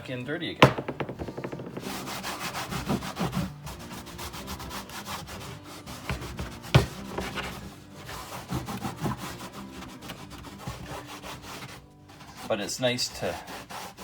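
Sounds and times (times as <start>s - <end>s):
sharp knock: 0.6s - 2.3s
rubbing and scraping of tools: 0.6s - 14.0s.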